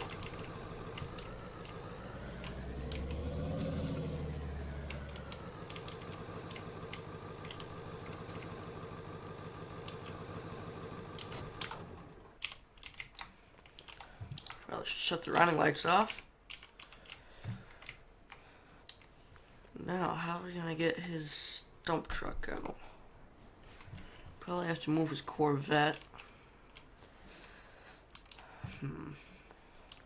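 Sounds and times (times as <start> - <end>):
sharp clicks: 0.0 - 4.0, 4.7 - 8.5, 9.6 - 14.6
truck engine running: 0.0 - 12.4.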